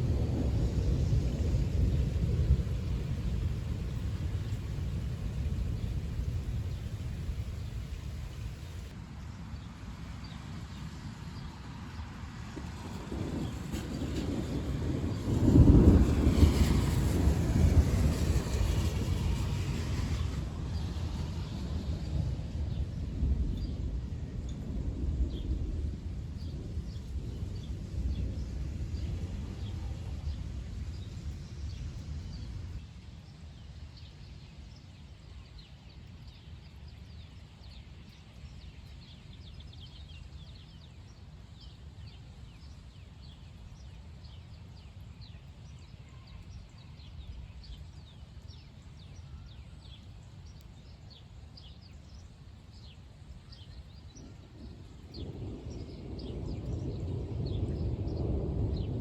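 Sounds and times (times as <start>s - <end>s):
thunder rumbling: 0.0s - 8.9s, 12.6s - 32.8s, 53.5s - 59.0s.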